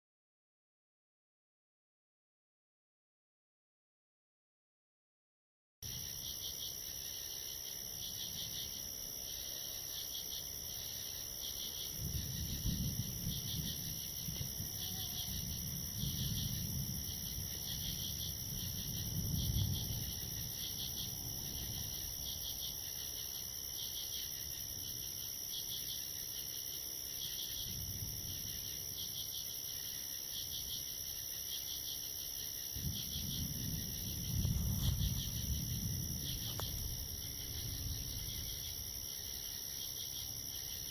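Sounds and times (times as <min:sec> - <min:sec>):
night insects chirping: 0:05.8 - 0:40.9
distant thunder rumbling: 0:10.7 - 0:23.7, 0:32.6 - 0:39.7.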